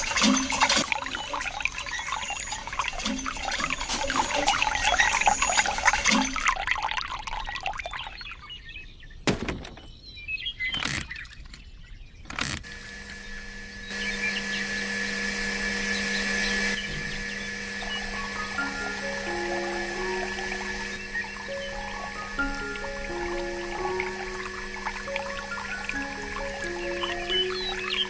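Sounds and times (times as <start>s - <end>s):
water splashing and pouring: 0.0s - 8.7s, 16.8s - 28.0s
sharp clicks: 10.7s - 11.6s, 12.2s - 13.2s
steady hum with held tone: 12.7s - 28.0s.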